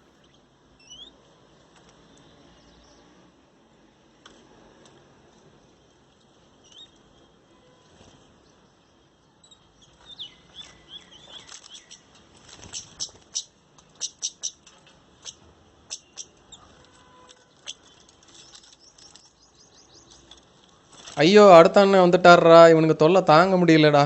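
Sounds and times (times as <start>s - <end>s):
birds chirping: 0.1s - 1.4s, 5.6s - 7.3s, 8.0s - 22.4s.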